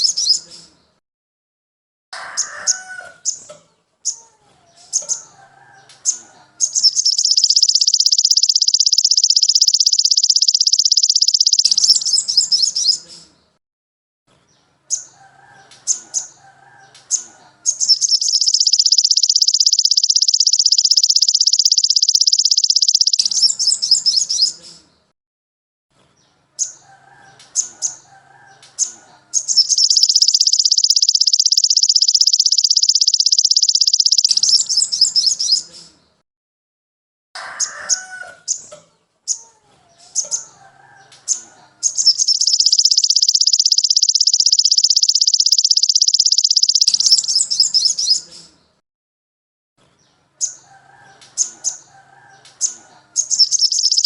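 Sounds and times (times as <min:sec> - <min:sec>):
rapid high-pitched bird trill: 0:00.0 - 0:00.5, 0:06.0 - 0:13.0, 0:17.6 - 0:24.6, 0:29.3 - 0:35.7, 0:41.3 - 0:48.3, 0:52.6 - 0:54.0
songbird chirps and warbling: 0:00.0 - 0:01.0, 0:02.2 - 0:13.6, 0:14.3 - 0:25.1, 0:26.0 - 0:36.2, 0:37.5 - 0:48.8, 0:49.8 - 0:54.0.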